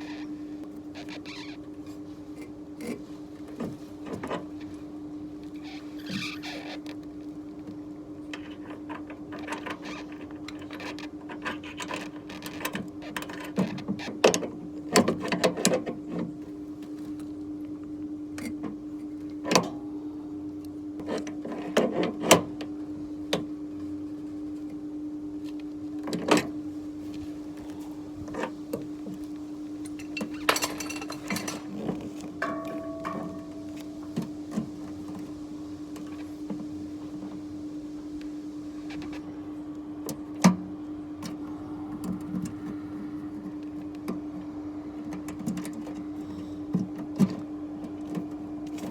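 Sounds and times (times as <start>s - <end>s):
steady machine hum: 16.3s - 48.9s.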